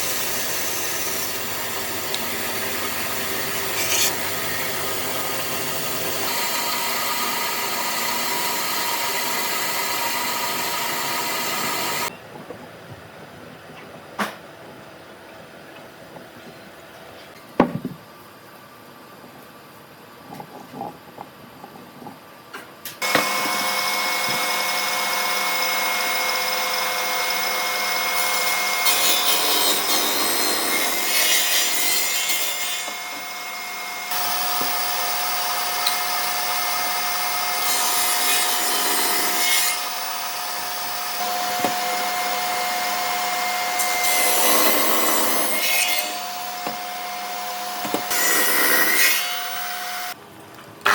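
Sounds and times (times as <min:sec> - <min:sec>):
power tool cutting wood: 0:00.0 - 0:12.1, 0:23.0 - 0:50.2.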